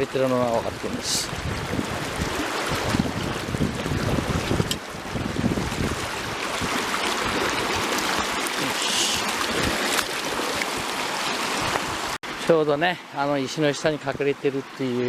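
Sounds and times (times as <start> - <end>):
wind buffeting microphone: 0.0 - 8.4
stream water running: 0.0 - 15.0.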